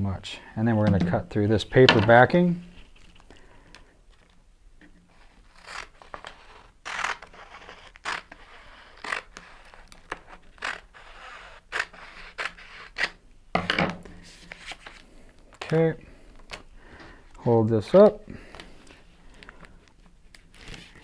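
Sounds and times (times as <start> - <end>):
crisp cutting of paper: 5.1 - 13.2.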